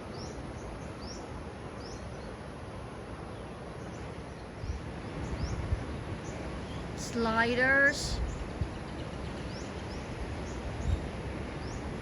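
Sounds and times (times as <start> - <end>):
outdoor ambient hiss: 0.0 - 12.0.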